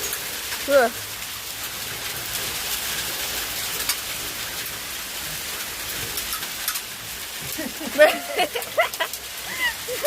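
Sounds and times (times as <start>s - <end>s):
hail and rain hissing: 0.0s - 10.0s
hailstones ticking: 0.0s - 10.0s.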